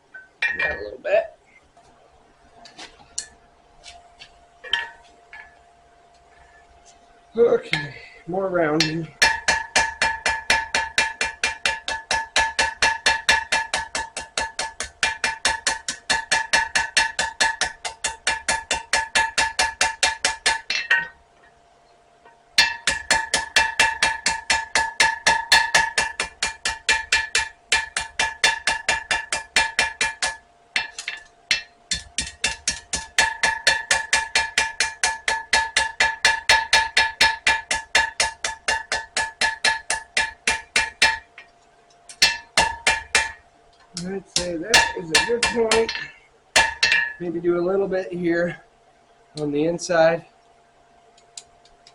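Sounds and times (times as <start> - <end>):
hammer blows on steel over anvil: 44.0 - 47.4.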